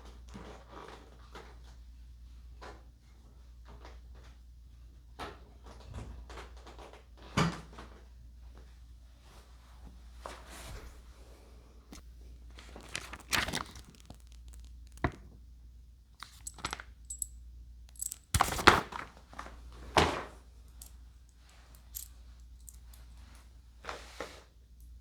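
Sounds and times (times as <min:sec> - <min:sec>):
rustling: 0:12.4 - 0:15.2.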